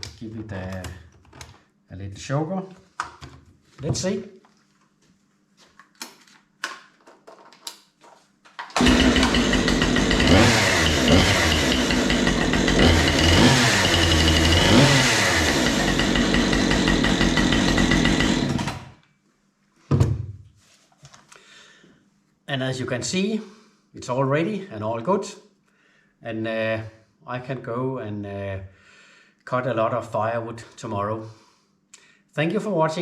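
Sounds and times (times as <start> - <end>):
chainsaw engine revving: 8.8 - 18.9.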